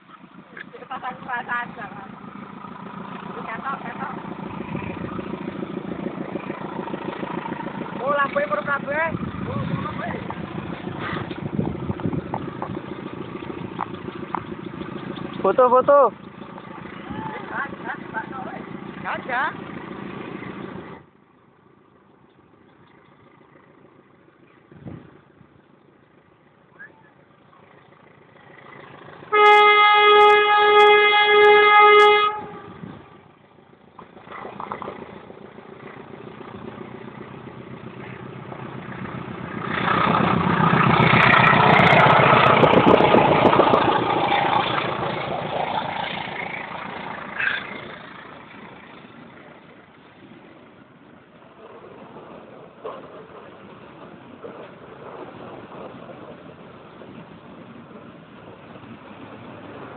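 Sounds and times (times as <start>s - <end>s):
train passing at speed rumble: 0.0s - 21.0s, 27.9s - 59.9s
train horn blasts: 29.3s - 32.8s.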